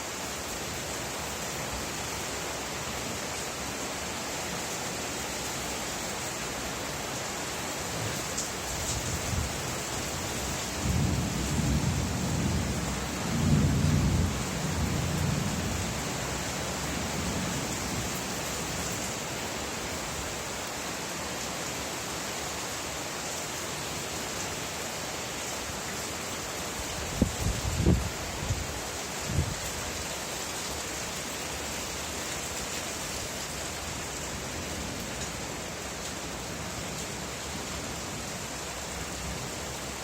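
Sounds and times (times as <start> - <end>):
steady rain falling: 0.0 - 40.0
thunder rumbling: 10.8 - 15.9.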